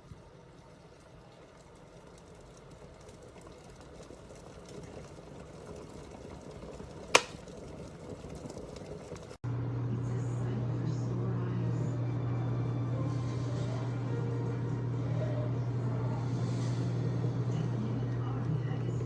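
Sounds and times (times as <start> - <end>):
kettle heating water hiss: 0.0 - 9.3
kettle click: 7.1 - 7.4
low hum: 9.5 - 19.0.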